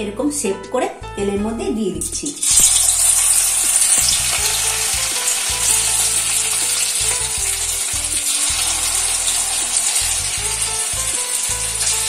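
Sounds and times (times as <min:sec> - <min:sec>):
patty sizzling in hot oil: 0:02.4 - 0:12.0.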